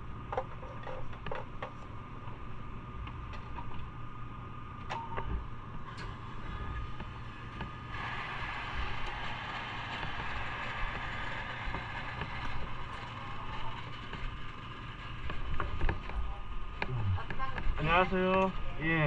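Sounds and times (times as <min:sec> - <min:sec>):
hissing noise: 0:06.1 - 0:18.4.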